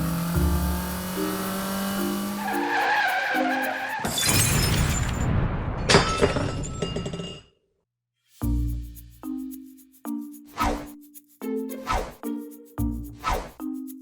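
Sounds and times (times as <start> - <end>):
background music: 0.0 - 4.0, 8.4 - 14.0
car tyres skidding: 0.1 - 4.2
glass shattering: 3.9 - 7.5
crash: 4.0 - 7.4.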